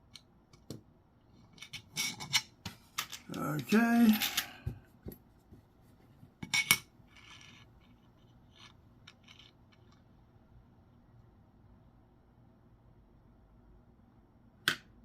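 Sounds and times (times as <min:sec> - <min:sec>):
coin clinking: 0:03.0 - 0:04.6.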